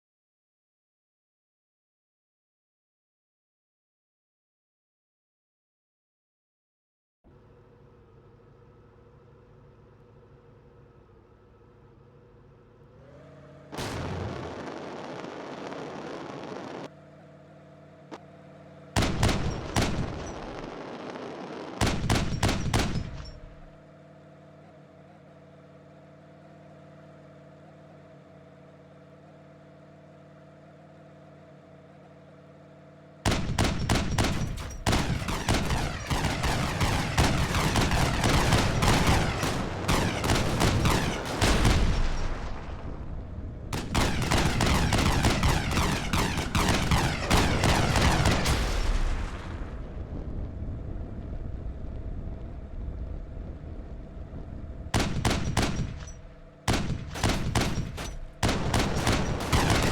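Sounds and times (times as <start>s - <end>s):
engine idling: 7.3s - 20.7s, 51.4s - 59.9s
exhaust pops and bangs: 21.8s - 23.7s, 33.3s - 49.5s, 54.9s - 59.9s.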